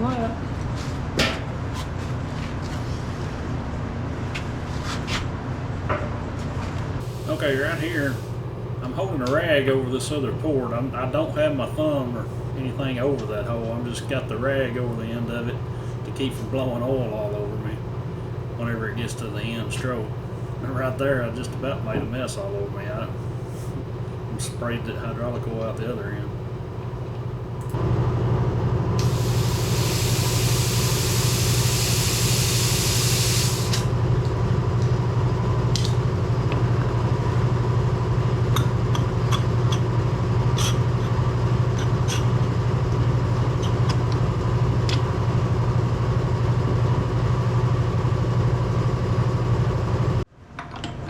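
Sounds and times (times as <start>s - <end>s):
loud hydraulic hiss: 7.0s - 8.4s, 29.0s - 33.9s.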